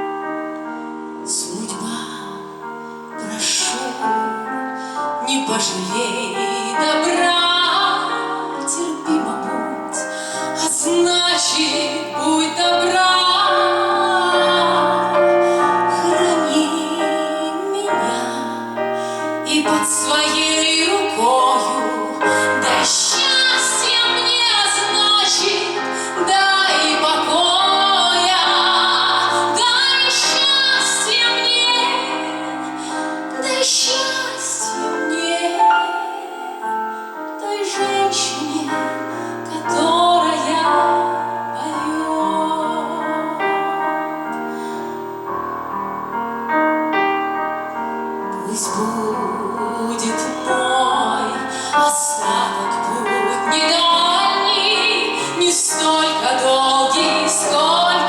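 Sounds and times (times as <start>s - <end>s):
woman singing: 1.2s - 44.3s, 48.2s - 58.0s.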